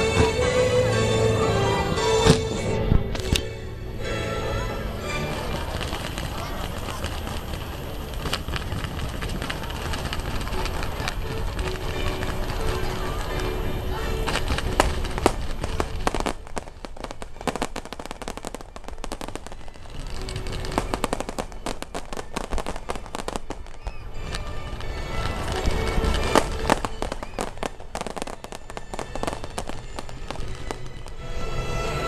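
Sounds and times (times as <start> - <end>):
music: 0.0 - 6.8, 9.7 - 16.3, 24.0 - 32.0
voices: 0.0 - 16.7
fireworks bangs and crackles: 0.0 - 32.0.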